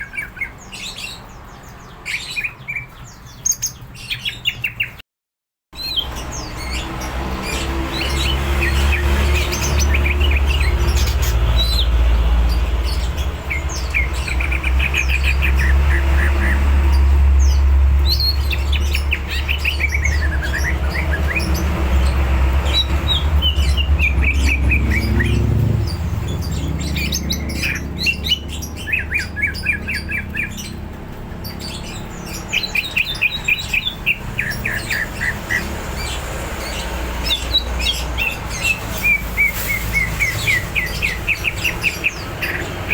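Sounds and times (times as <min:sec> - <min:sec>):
bird singing chirps and whistles: 0:17.4 - 0:30.8, 0:31.5 - 0:42.9.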